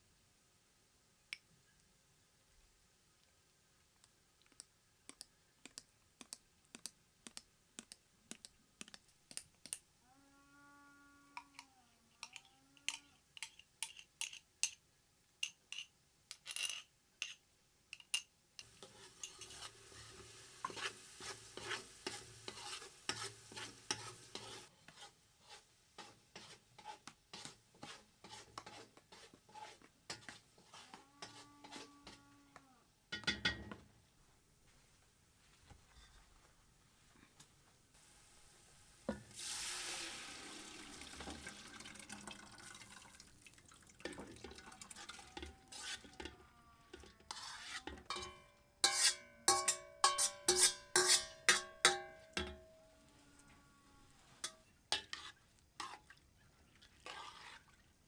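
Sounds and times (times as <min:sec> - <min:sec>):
food sizzling: 0:18.6 - 0:24.7, 0:38.0 - 0:46.1, 0:47.3 - 0:52.0
utensil scraping a pan: 0:18.6 - 0:32.2, 0:45.0 - 0:52.6, 0:54.1 - 0:56.1, 0:57.0 - 0:57.7.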